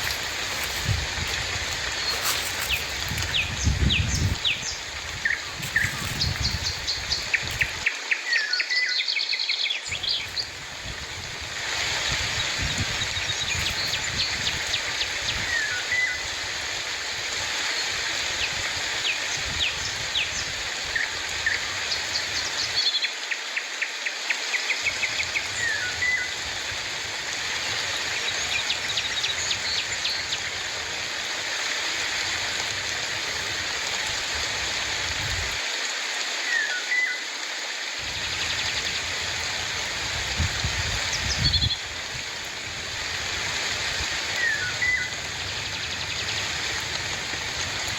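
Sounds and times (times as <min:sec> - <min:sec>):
birds chirping: 0:00.0 - 0:07.9, 0:09.9 - 0:11.0, 0:11.8 - 0:16.3
rain hiss: 0:00.0 - 0:47.9.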